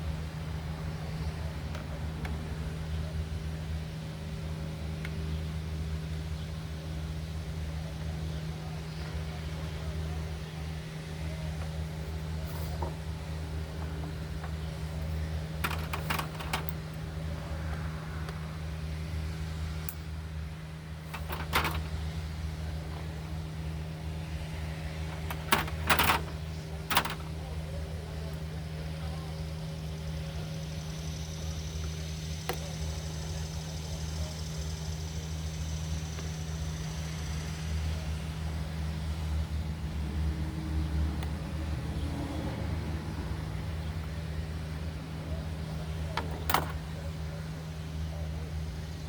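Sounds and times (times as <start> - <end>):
low mechanical hum: 0.0 - 49.0
faint handling noises: 13.8 - 17.0, 21.0 - 22.0, 25.0 - 27.6, 45.8 - 47.1.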